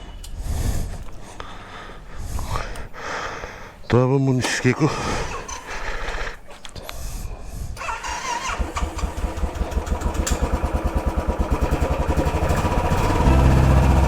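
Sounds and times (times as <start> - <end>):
motorcycle engine putting: 7.8 - 14.0.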